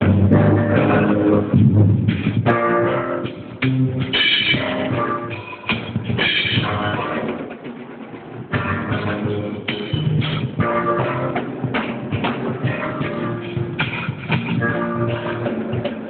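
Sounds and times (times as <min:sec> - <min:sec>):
guitar or bass notes: 0:00.0 - 0:07.3, 0:08.5 - 0:15.9
drum kit strikes: 0:00.0 - 0:16.0
live band playing: 0:00.0 - 0:16.0.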